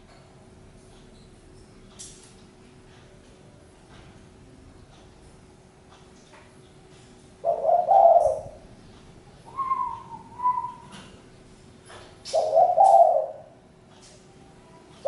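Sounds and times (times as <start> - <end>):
dove cooing: 7.4 - 8.7, 9.5 - 11.2, 12.2 - 13.6.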